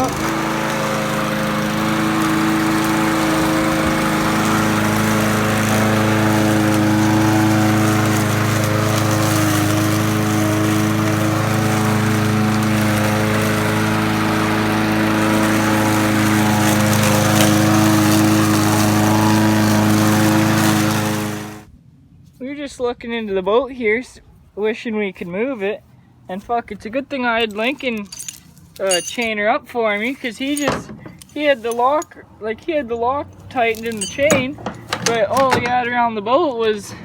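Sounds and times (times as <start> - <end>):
lawn mower engine running: 0.0 - 21.7, 30.0 - 32.2, 33.3 - 37.0.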